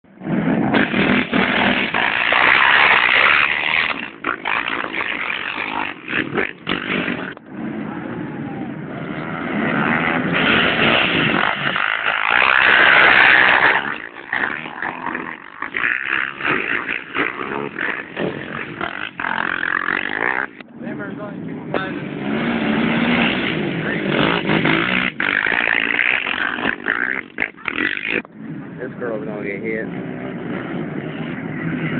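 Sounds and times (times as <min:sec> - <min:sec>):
atv engines revving: 0:00.1 - 0:31.9.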